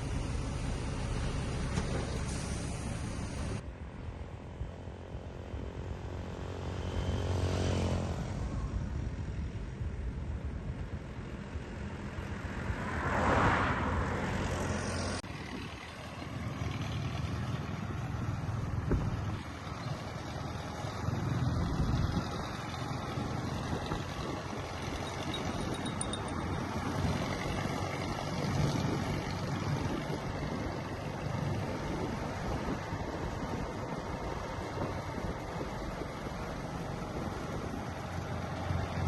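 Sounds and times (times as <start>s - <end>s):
diesel engine running under load: 0.0s - 3.6s, 15.2s - 39.0s.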